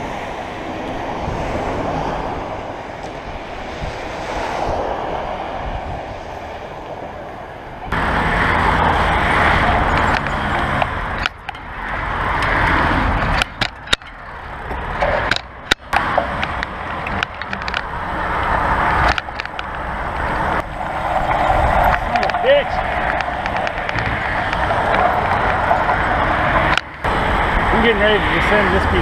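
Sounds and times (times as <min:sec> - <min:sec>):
wind rushing over microphone: 0:00.0 - 0:29.0
tyres rolling on rough surface: 0:07.9 - 0:29.0
sharp knocks and rattles: 0:09.7 - 0:18.0, 0:19.0 - 0:27.1.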